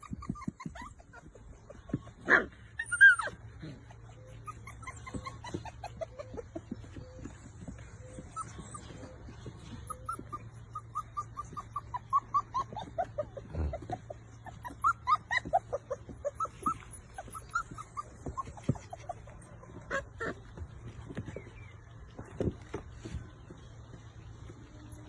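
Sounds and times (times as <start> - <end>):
puppies whining and squeaking: 0.0 - 25.0.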